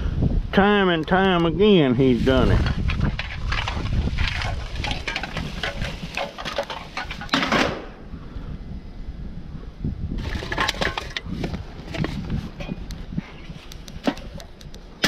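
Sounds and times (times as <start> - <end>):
objects clattering and rustling: 2.2 - 7.9, 10.2 - 14.7.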